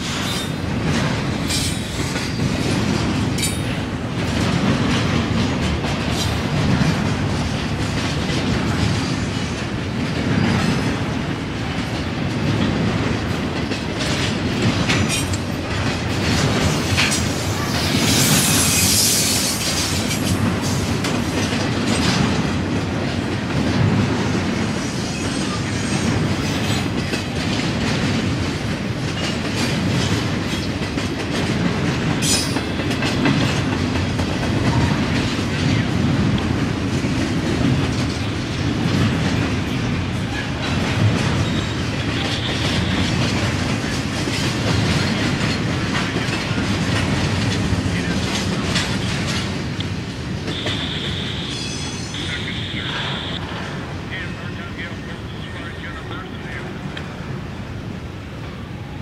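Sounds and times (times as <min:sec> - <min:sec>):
train wheels clattering over rail joints: 0:00.0 - 0:52.3
high wheel screech: 0:17.6 - 0:20.0.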